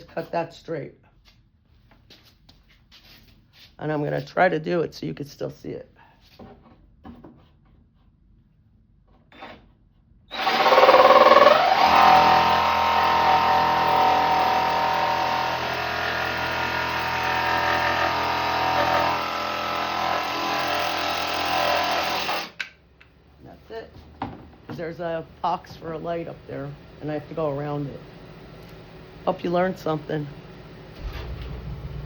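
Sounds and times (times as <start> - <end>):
electric jigsaw cutting: 10.3 - 22.6.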